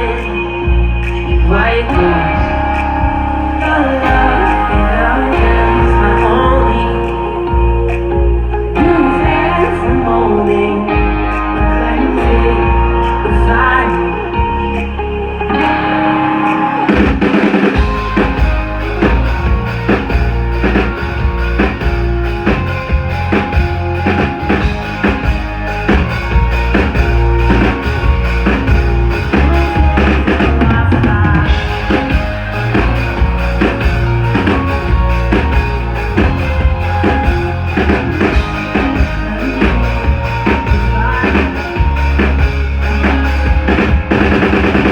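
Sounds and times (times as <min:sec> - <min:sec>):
live rock band playing: 0:02.4 - 0:09.7, 0:16.4 - 0:44.9.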